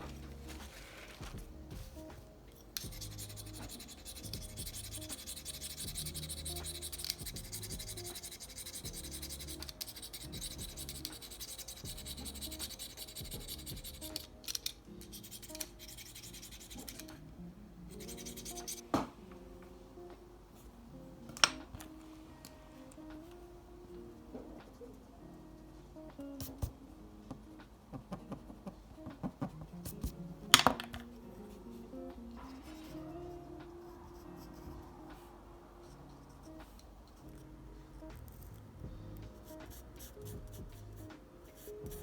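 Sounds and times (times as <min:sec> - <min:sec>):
soft background music: 0:00.0 - 0:42.0
drawing tool scratching on paper: 0:02.7 - 0:17.2, 0:17.9 - 0:18.8, 0:39.3 - 0:42.0.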